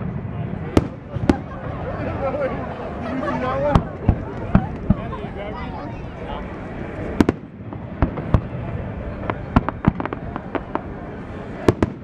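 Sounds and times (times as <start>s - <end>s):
fireworks bangs and pops: 0.0s - 1.5s, 7.2s - 8.5s, 11.7s - 12.0s
background rumble: 0.0s - 12.0s.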